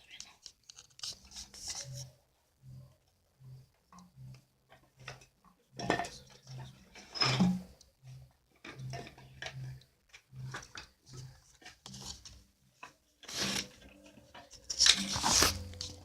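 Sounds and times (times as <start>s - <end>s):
scrapes and knocks of handled objects: 4.7s - 16.0s.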